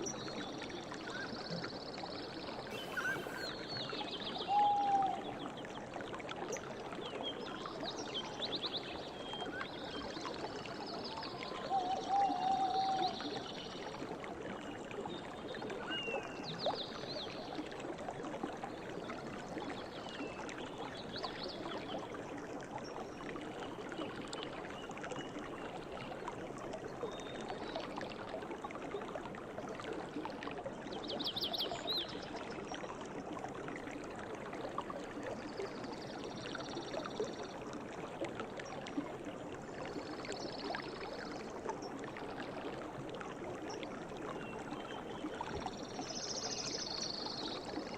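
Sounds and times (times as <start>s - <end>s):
river water flowing: 0.0s - 47.9s
birds chirping and trilling: 2.7s - 4.9s.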